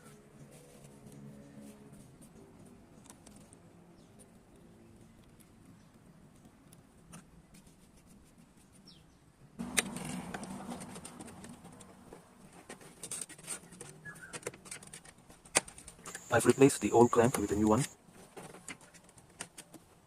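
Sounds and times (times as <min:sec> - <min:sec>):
bird chirps: 0:14.0 - 0:14.4.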